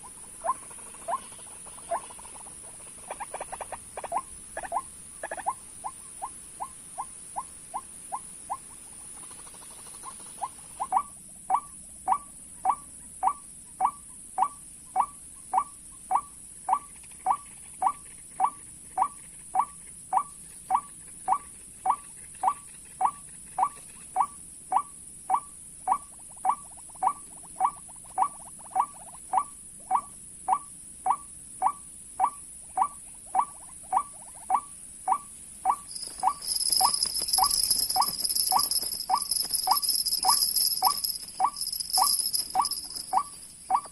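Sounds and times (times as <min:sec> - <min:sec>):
waterhen calling: 0:35.1 - 0:43.9.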